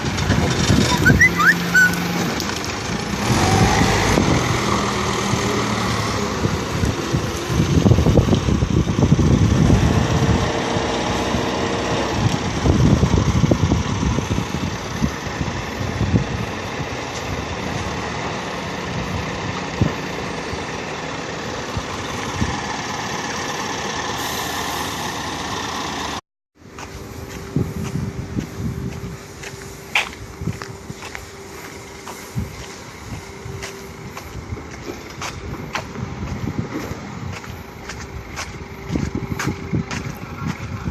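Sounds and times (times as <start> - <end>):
truck diesel engine running: 0.0 - 40.9.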